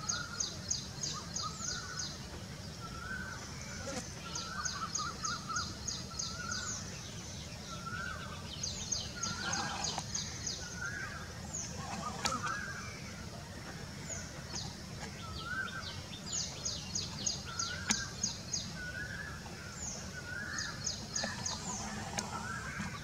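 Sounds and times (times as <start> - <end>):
birds calling: 0.0 - 23.0.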